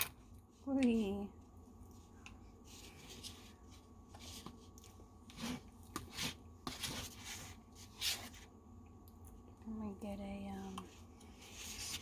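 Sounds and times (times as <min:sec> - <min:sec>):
utensil scraping a pie dish: 0:05.2 - 0:08.4.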